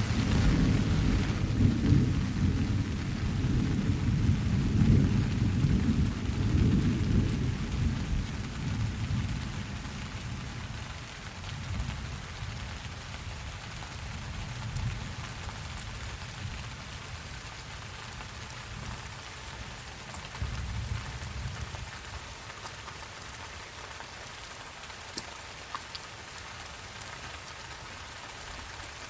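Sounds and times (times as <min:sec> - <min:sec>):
thunder rumbling: 0:00.0 - 0:10.6
steady rain: 0:00.0 - 0:29.0.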